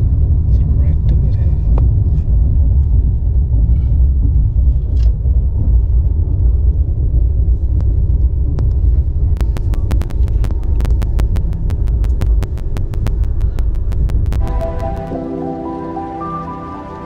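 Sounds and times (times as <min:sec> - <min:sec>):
train rumbling on track: 0:00.0 - 0:10.9
fast sharp clicks: 0:06.7 - 0:15.2.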